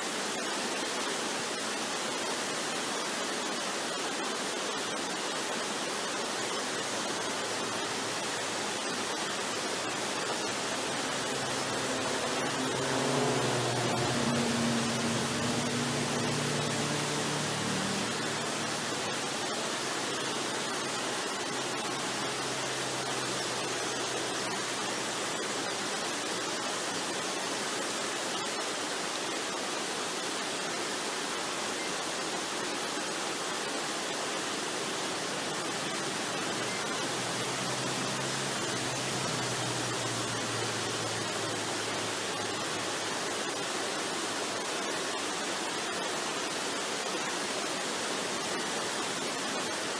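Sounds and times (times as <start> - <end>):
waterfall rushing: 0.0 - 49.9
soft relaxation music: 9.6 - 19.4.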